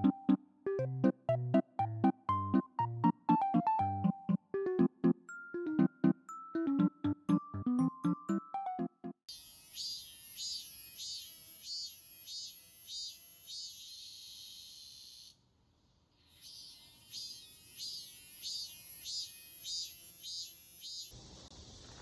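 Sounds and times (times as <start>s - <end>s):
cicadas singing: 9.3s - 15.4s, 16.2s - 22.0s.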